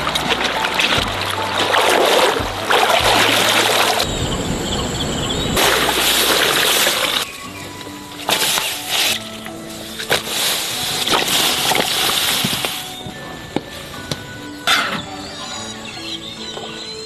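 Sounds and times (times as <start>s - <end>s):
water splashing and running: 0.0s - 4.1s, 5.0s - 13.0s
background music: 0.0s - 17.0s.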